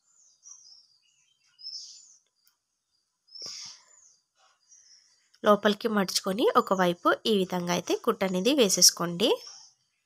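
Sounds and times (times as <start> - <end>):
small bird chirping: 0.0 - 10.0.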